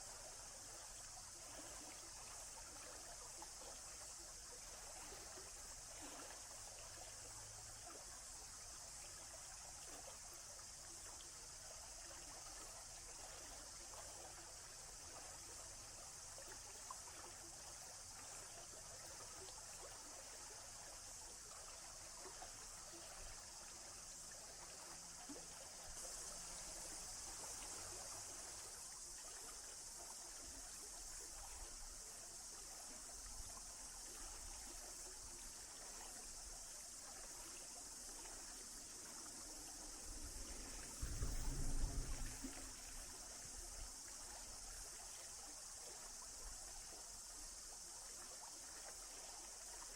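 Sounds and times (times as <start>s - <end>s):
small stream trickling: 0.0s - 49.9s
low rumble: 40.7s - 43.2s.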